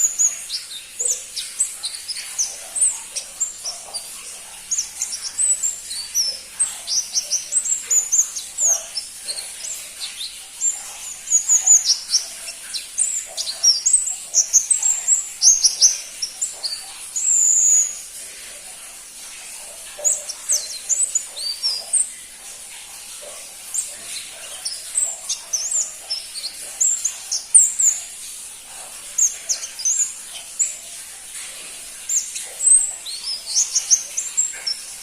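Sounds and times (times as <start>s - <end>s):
small bird twittering: 0.0s - 18.2s, 23.3s - 30.8s, 31.4s - 35.0s.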